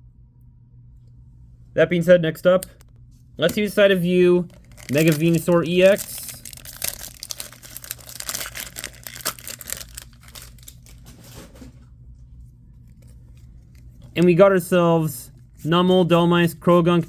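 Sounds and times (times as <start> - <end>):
foil wrapper tearing and crinkling: 4.5 - 11.5.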